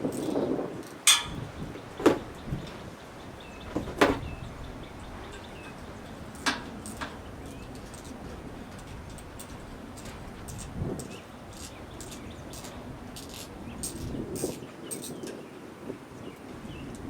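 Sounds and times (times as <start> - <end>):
hand tools knocking and clanking: 1.0 - 2.8, 3.6 - 4.4.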